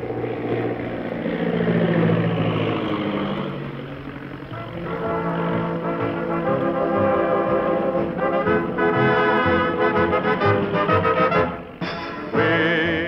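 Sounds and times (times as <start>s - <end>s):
propeller aircraft engine drone: 0.0s - 13.0s
brass-led orchestral music: 4.5s - 13.0s.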